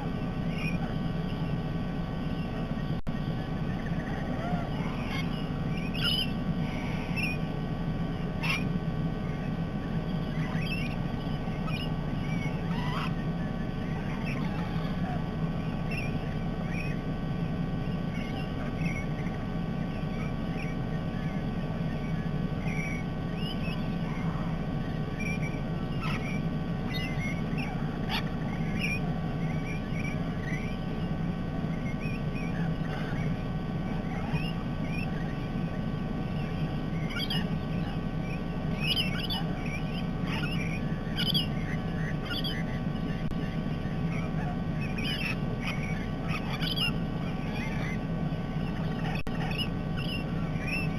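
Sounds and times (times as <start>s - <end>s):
low background rumble: 0.0s - 50.9s
parrots chirping and squawking: 0.0s - 50.9s.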